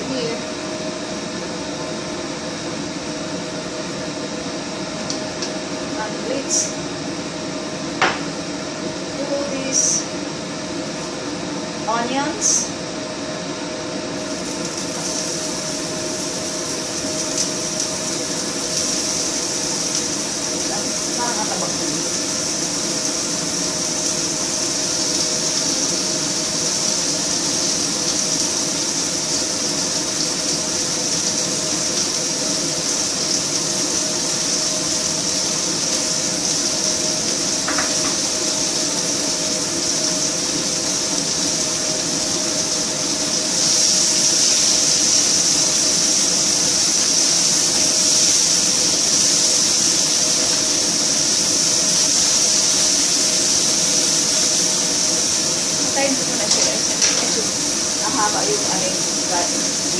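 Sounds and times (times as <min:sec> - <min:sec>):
onions sizzling in hot oil: 0:00.0 - 0:01.5, 0:14.0 - 0:59.9.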